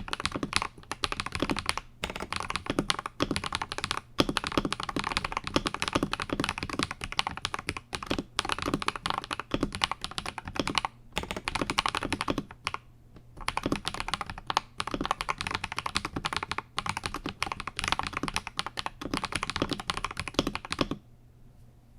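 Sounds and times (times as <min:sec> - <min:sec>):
mechanical keyboard typing: 0:00.0 - 0:21.0.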